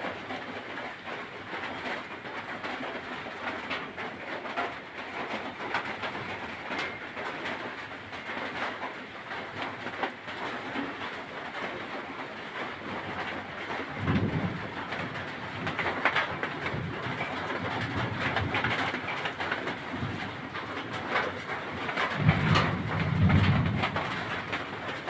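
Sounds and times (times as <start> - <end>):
heavy rain pouring: 0.0 - 25.0
gusty wind: 14.0 - 14.8.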